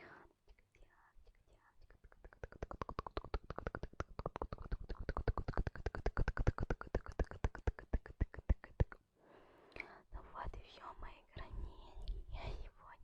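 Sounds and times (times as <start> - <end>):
rapid sharp clicking: 2.0 - 8.9.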